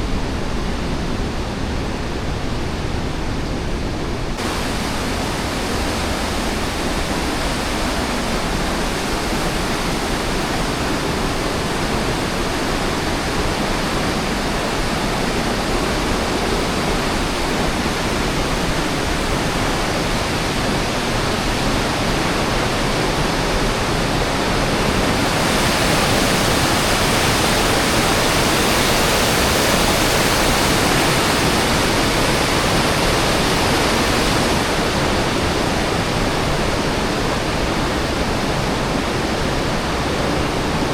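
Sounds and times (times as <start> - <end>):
waterfall rushing: 4.4 - 40.9.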